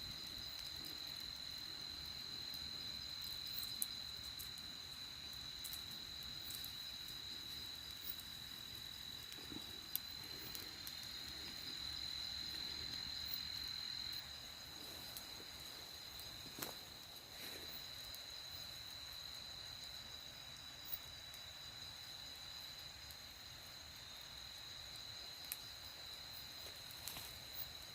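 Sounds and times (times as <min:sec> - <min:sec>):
crickets trilling: 0:00.0 - 0:27.9.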